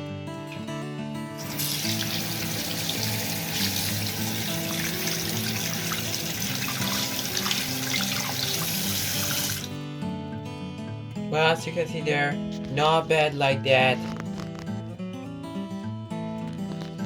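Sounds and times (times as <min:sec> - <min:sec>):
background music: 0:00.0 - 0:16.8
water running from tap into sink: 0:01.4 - 0:09.8.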